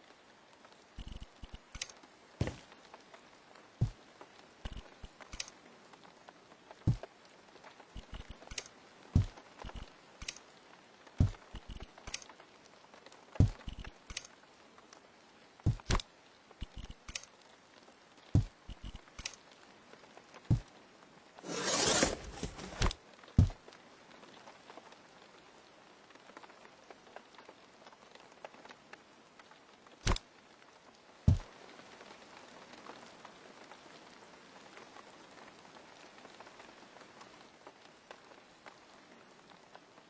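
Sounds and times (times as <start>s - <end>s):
irregular knocks and taps: 11.2s - 12.0s, 13.4s - 14.1s, 15.7s - 16.0s, 18.4s - 19.2s, 31.3s - 31.5s.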